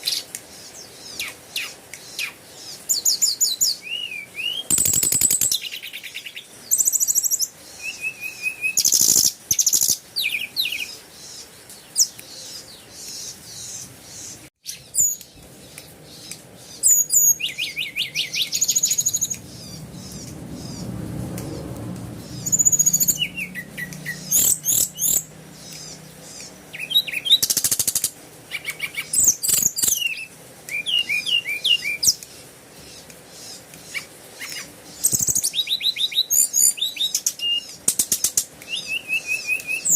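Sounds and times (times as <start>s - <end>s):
small birds chirping and trilling: 0.0s - 39.9s
faint low rumble: 18.0s - 26.4s.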